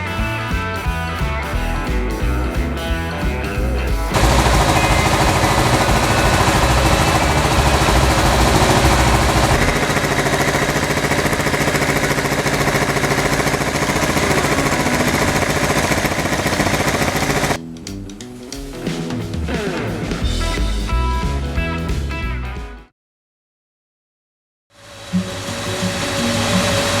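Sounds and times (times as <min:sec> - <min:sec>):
motorcycle engine running: 0:01.6 - 0:17.6, 0:24.9 - 0:27.0.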